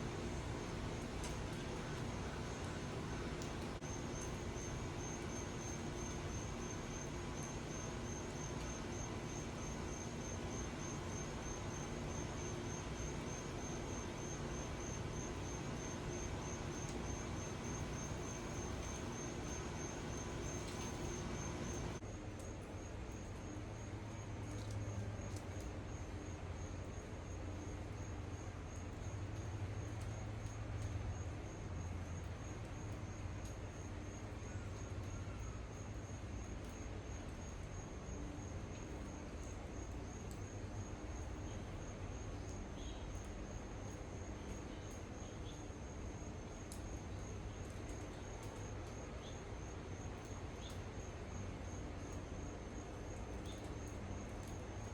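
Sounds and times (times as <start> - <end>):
low steady hum: 0.0 - 23.2.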